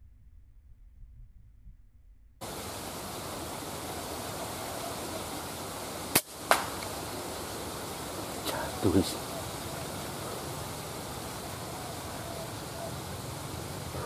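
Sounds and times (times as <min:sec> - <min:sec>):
wind noise hiss: 0:02.4 - 0:14.0
air rifle crack: 0:05.8 - 0:08.6.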